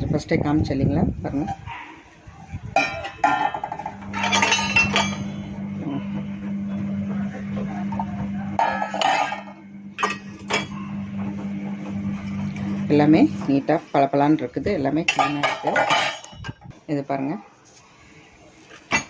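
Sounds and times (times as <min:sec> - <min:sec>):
steel plates clinking: 0:02.8 - 0:05.4, 0:08.6 - 0:10.8, 0:15.1 - 0:16.5.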